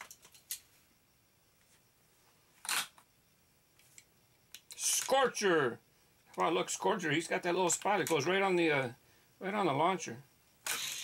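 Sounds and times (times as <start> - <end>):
sharp toy car clack: 10.6 - 11.0.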